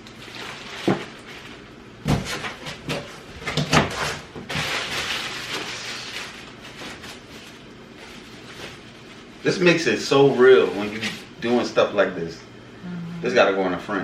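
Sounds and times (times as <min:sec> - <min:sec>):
rustling or scraping: 0:03.9 - 0:09.4.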